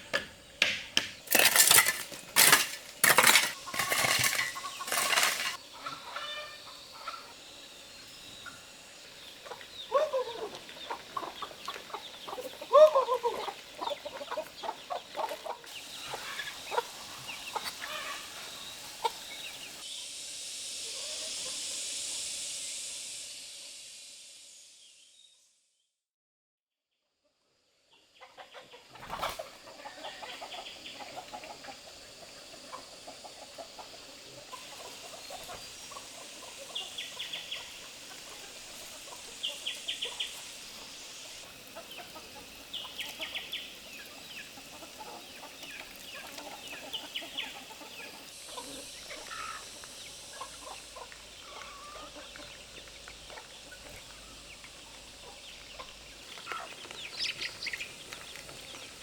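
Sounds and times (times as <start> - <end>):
background hiss: 0.0 - 25.8, 27.5 - 59.0
poultry high calls: 3.2 - 7.4, 9.3 - 19.8, 32.6 - 59.0
lower poultry calls: 50.4 - 58.8.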